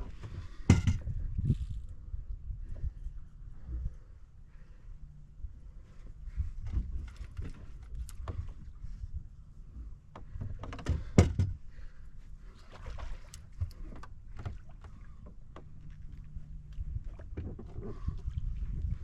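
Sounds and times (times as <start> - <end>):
knocks and bumps on a boat: 0.0 - 1.6, 9.8 - 11.9, 13.5 - 19.0.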